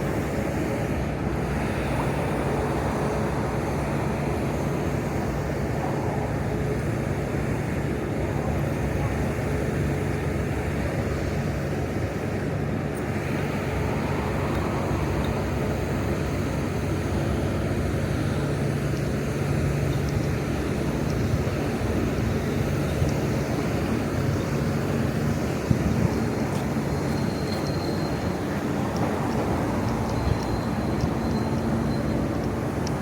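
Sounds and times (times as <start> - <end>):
city traffic drone: 0.0 - 33.0
constant low hum: 0.0 - 33.0.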